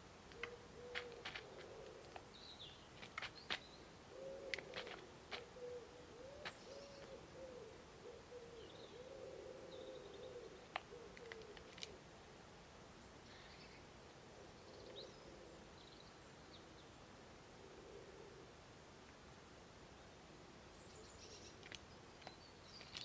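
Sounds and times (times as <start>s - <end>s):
small birds chirping: 0.3s - 12.0s, 19.9s - 23.0s
pigeon cooing: 0.4s - 2.2s, 4.1s - 12.0s, 14.4s - 15.7s, 17.6s - 18.5s.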